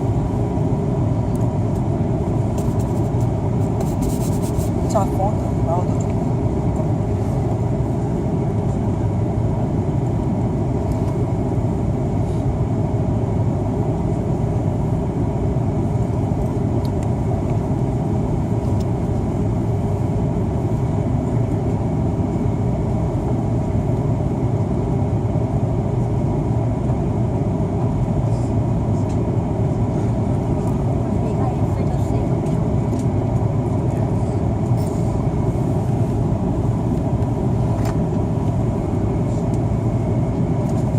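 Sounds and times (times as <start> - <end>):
cabin air rush and engine hum: 0.0 - 40.9.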